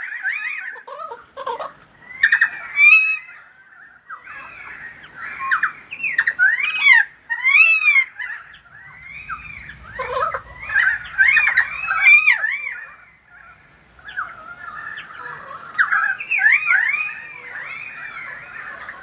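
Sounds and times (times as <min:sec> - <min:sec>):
bird warbling whistled notes: 0:05.2 - 0:15.0.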